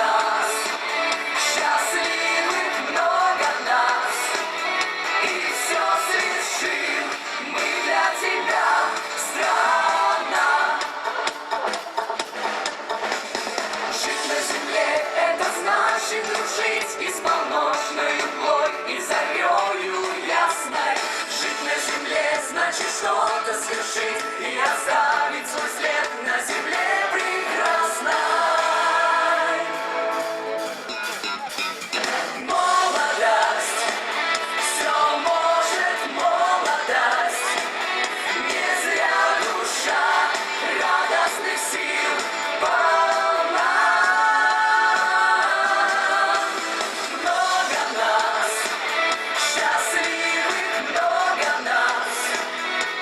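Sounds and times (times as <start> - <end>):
voices singing together: 0.0 - 12.0, 13.9 - 30.2, 31.8 - 53.0
live pop band playing: 0.0 - 53.0
person singing: 14.0 - 30.1.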